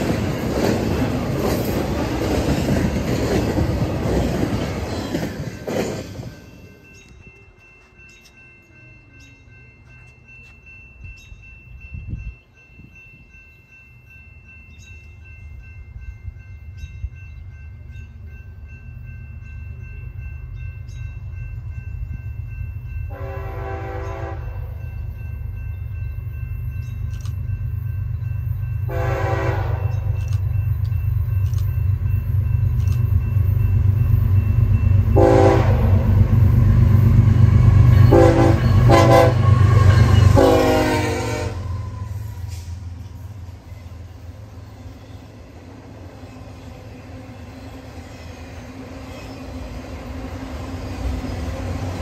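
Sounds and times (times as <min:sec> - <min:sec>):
locomotive engine and wheels rumbling: 0:00.0 - 0:52.0
train horn blasts: 0:23.1 - 0:24.8, 0:28.9 - 0:30.2, 0:35.1 - 0:36.2, 0:38.0 - 0:42.8.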